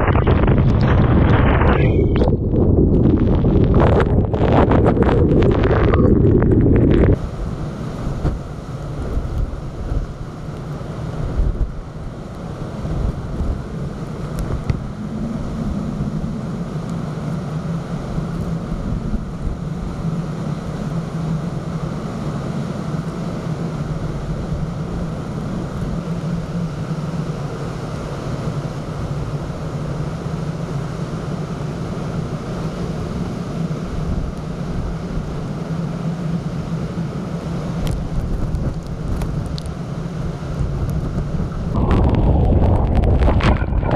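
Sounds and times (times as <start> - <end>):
wind buffeting microphone: 0.0 - 22.0, 37.8 - 43.9
steady low hum: 0.0 - 43.9
surf roar: 0.0 - 43.9.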